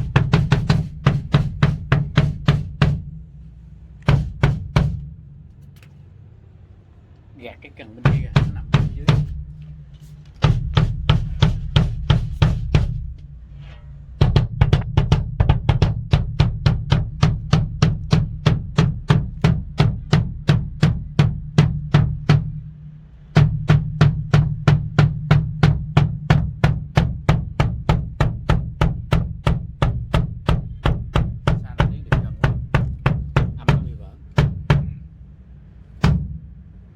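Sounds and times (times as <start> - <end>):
snare drum struck with sticks: 0.0 - 3.2, 4.0 - 5.1, 8.0 - 13.2, 14.2 - 22.5, 23.4 - 35.0.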